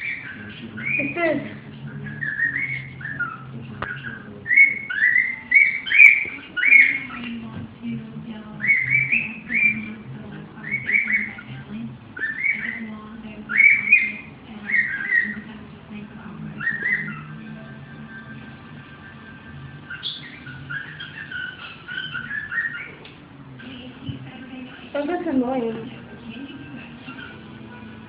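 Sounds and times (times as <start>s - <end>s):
cockatiel whistling: 0.0s - 7.3s, 8.6s - 10.0s, 10.6s - 11.5s, 12.2s - 12.9s, 13.5s - 15.5s, 16.6s - 23.1s, 27.0s - 27.6s.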